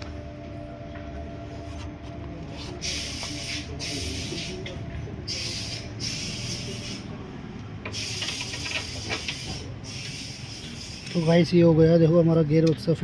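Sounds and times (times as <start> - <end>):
short hissing bursts: 2.8 - 4.6, 5.3 - 7.1, 7.9 - 11.3.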